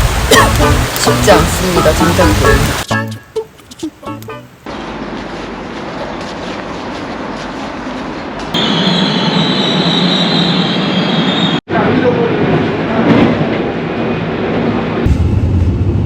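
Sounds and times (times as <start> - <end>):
subway train rumbling: 4.6 - 16.0
train wheel squeal: 8.6 - 11.6.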